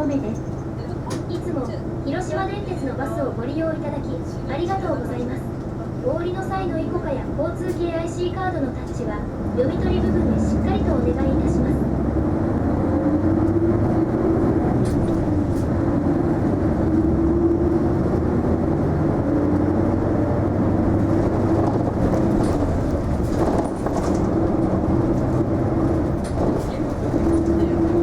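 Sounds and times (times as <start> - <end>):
bus engine and drive noise: 0.0 - 28.0
faint rattles: 21.0 - 28.0.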